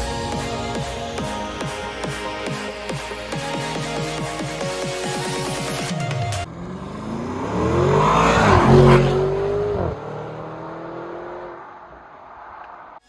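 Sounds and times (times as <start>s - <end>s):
car engine accelerating: 5.6s - 13.0s.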